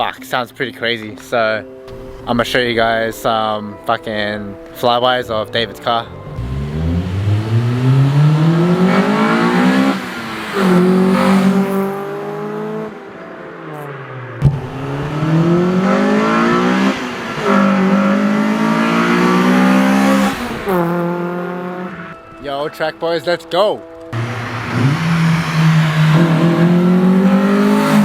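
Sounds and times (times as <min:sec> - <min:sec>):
car engine accelerating past: 0:06.1 - 0:22.3, 0:24.1 - 0:28.0.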